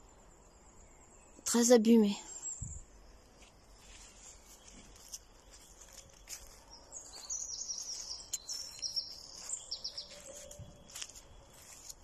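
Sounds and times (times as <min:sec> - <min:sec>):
songbird singing trilled phrases: 0:00.0 - 0:03.1, 0:04.3 - 0:11.9
footsteps in undergrowth: 0:03.2 - 0:12.0.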